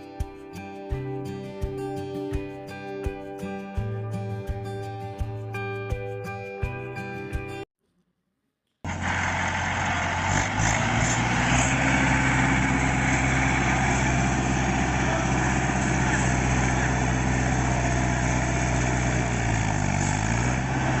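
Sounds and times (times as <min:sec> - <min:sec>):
tractor engine running: 0:08.9 - 0:21.0.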